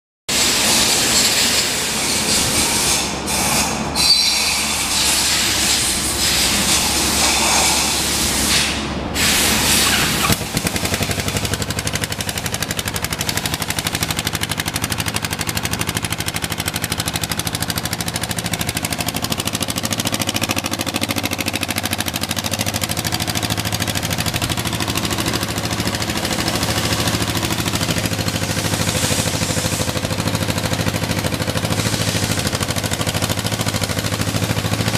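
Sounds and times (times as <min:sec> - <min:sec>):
motorcycle engine idling: 0:09.8 - 0:34.9.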